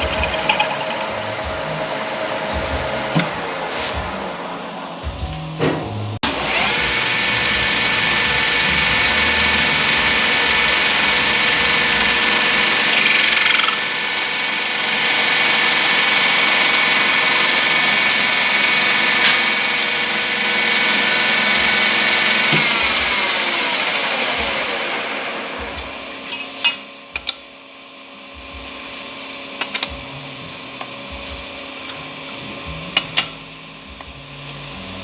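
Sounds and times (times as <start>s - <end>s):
lathe running: 0.0s - 5.1s, 6.2s - 27.3s.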